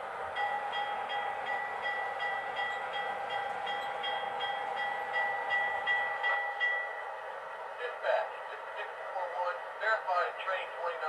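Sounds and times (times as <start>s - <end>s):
model locomotive bell ringing: 0.4s - 7.0s.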